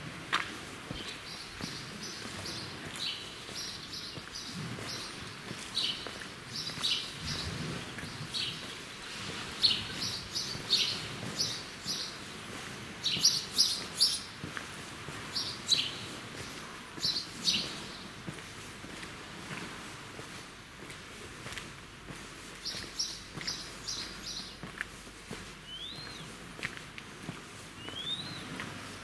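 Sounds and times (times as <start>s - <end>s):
small birds chirping: 0.9s - 12.4s, 13.0s - 14.4s, 15.3s - 16.1s, 17.0s - 18.2s, 22.6s - 24.7s, 25.6s - 26.4s, 27.8s - 28.6s.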